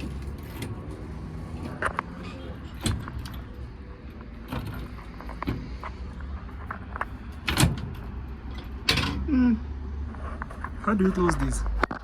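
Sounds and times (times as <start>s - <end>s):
truck door clicks and knocks: 4.4s - 5.9s, 7.4s - 9.2s.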